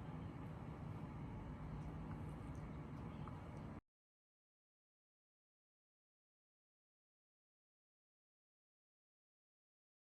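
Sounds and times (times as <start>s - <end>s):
steady low hum: 0.0s - 3.8s.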